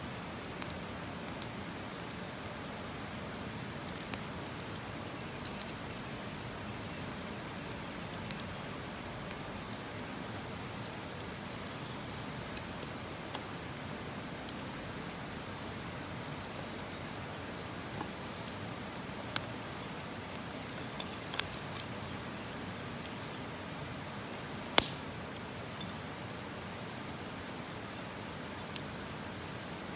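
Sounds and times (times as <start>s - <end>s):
campfire hissing and crackling: 0.0s - 29.9s.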